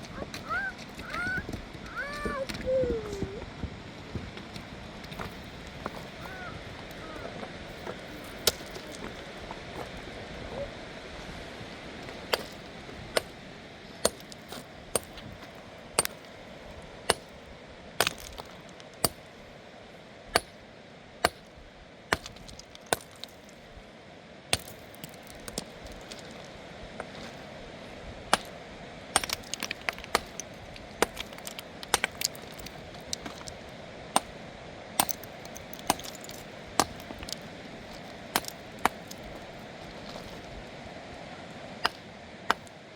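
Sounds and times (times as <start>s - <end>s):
steady background hiss: 0.0s - 42.9s
hard objects clinking: 29.2s - 33.6s, 35.0s - 39.4s.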